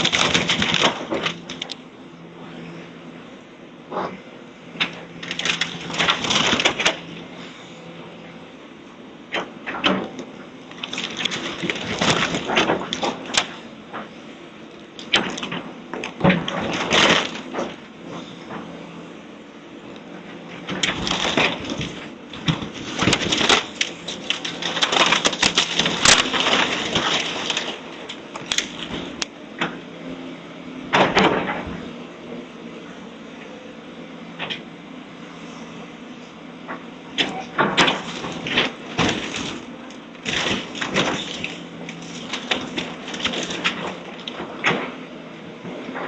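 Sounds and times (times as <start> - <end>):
wood cracking and crashing: 0.0 - 1.8, 4.8 - 7.2, 9.8 - 14.0, 15.0 - 17.8, 20.6 - 29.3, 37.2 - 45.0
low machine hum: 0.0 - 46.0.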